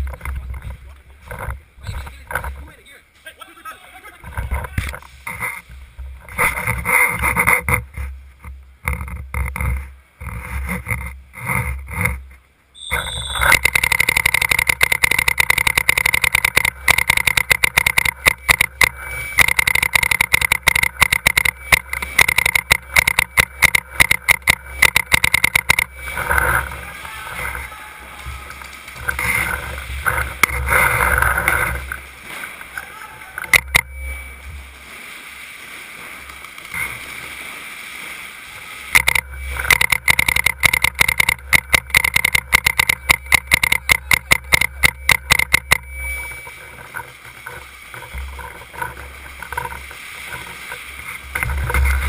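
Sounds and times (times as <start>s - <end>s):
short high beep: 12.8s - 14.2s, 33.4s - 34.8s, 38.9s - 46.9s.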